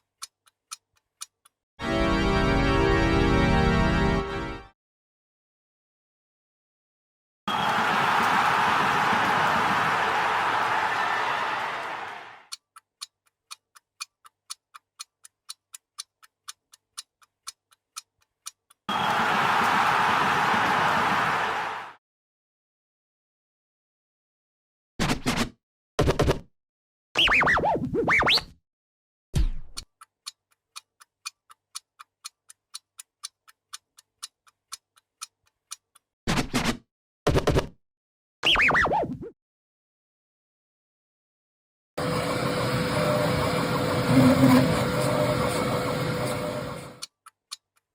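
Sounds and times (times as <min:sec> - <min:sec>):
clock-like ticking: 0:00.0 - 0:01.6, 0:12.5 - 0:18.9, 0:29.8 - 0:36.1, 0:42.9 - 0:47.9
mechanical ticking: 0:12.5 - 0:18.8
sound effect: 0:25.0 - 0:26.5, 0:27.2 - 0:28.6, 0:36.3 - 0:37.8, 0:38.4 - 0:39.3, 0:42.9 - 0:47.0.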